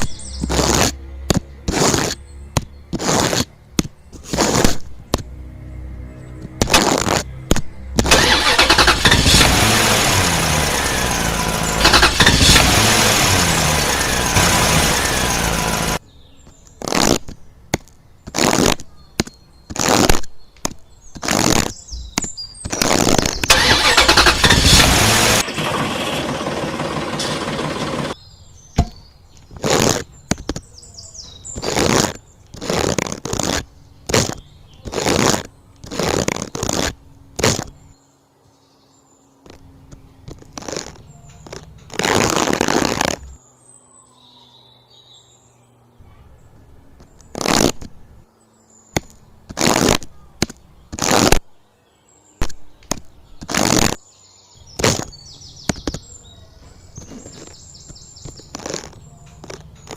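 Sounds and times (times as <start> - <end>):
small tractor engine revving: 0.0 - 1.0, 2.9 - 3.5, 8.0 - 16.0, 22.7 - 28.2, 31.6 - 37.8, 40.4 - 43.4, 57.0 - 59.9.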